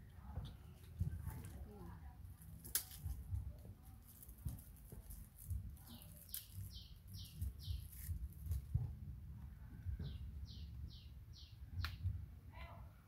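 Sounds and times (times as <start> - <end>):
faint rustling and handling noise: 0.0 - 10.1.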